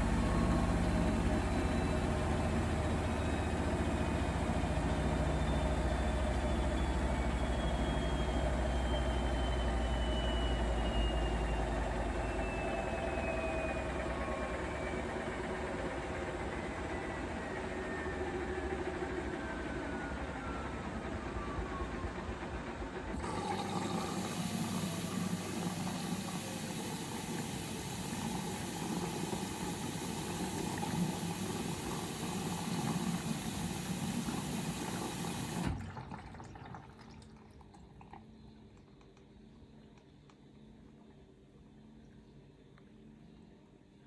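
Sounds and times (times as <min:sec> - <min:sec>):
washing machine motor whine: 0:00.0 - 0:44.0
water rushing into machine: 0:23.1 - 0:38.6.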